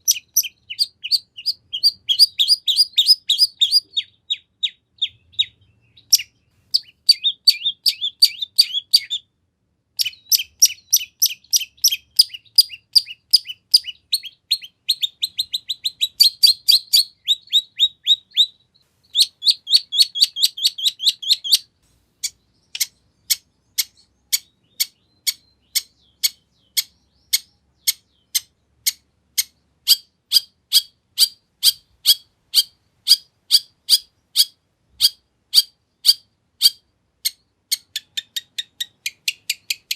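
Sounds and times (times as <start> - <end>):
slow evenly spaced bird chips: 0.0 - 39.9
shrike chirping: 10.0 - 29.0.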